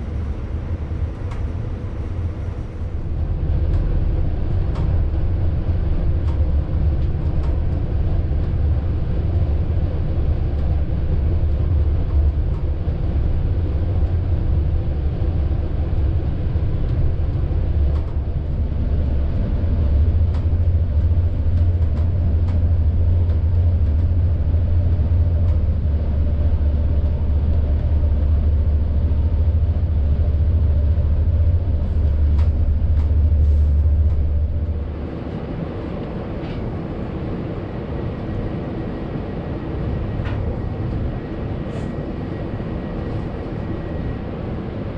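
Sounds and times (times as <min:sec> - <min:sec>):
passenger train rumbling: 0:00.0 - 0:44.9.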